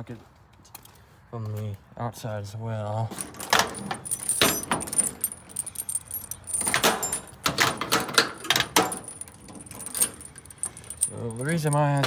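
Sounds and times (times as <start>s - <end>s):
keys jangling: 3.1s - 12.0s.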